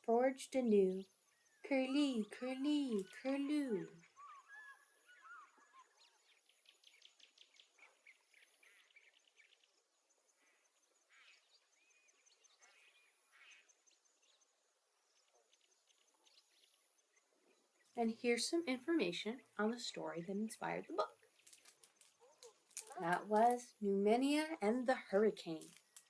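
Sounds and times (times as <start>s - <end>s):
faint bird calls: 1.6s - 9.5s, 10.4s - 13.8s.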